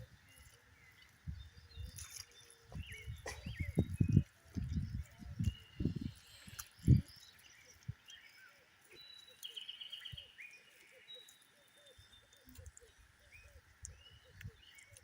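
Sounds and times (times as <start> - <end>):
faint chirping: 0.0 - 15.0
small birds calling: 0.0 - 15.0.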